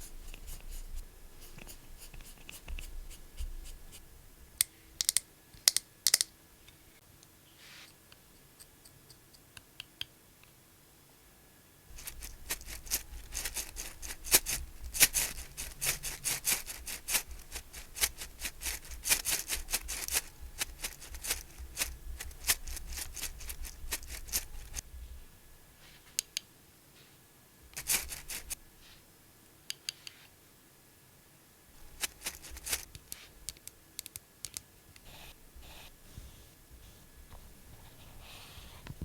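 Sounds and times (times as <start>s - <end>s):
makeup scratching and clicking: 0.0s - 3.8s, 11.9s - 24.8s, 27.8s - 28.6s, 31.9s - 34.7s.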